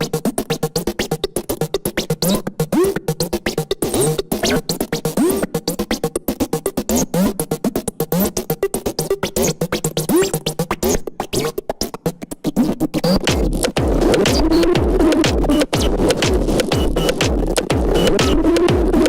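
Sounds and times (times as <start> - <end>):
electronic dance music: 13.1 - 19.0.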